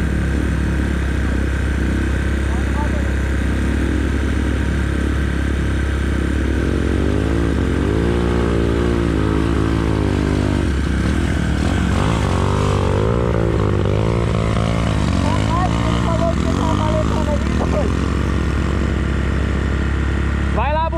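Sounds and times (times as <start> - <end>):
motorcycle engine revving: 0.0 - 20.9.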